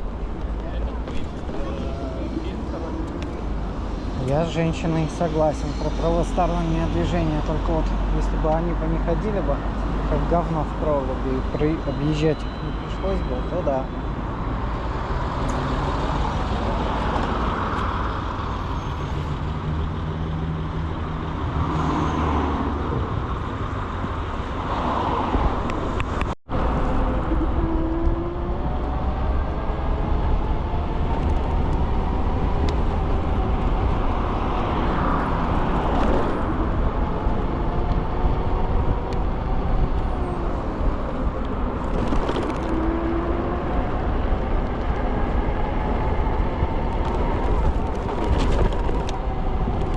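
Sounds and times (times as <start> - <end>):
road rumble: 0.0 - 49.9
vehicles passing with a swish: 0.0 - 49.9
wind: 0.0 - 49.9.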